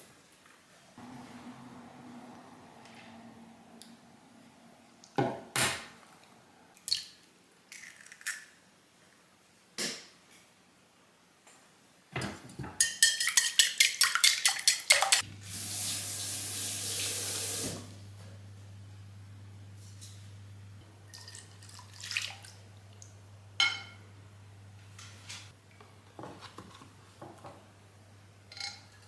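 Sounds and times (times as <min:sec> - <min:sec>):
dishes and utensils clinking: 0:12.2 - 0:15.2, 0:23.6 - 0:24.1, 0:28.5 - 0:29.0
low steady hum: 0:15.2 - 0:26.1
running water: 0:21.0 - 0:23.2.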